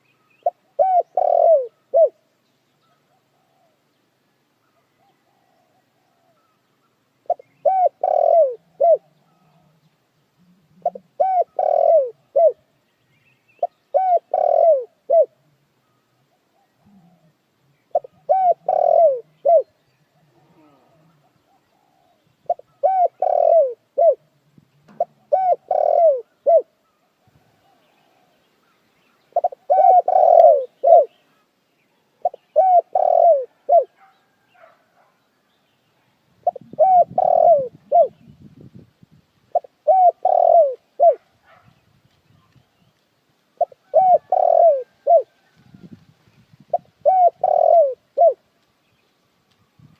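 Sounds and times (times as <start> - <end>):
dove cooing: 0.4 - 2.2, 2.9 - 3.8, 7.2 - 9.8, 10.4 - 12.7, 13.6 - 15.4, 16.3 - 28.4, 29.3 - 31.4, 32.1 - 34.8, 36.4 - 38.4, 39.5 - 41.7, 43.6 - 46.0, 46.6 - 48.4.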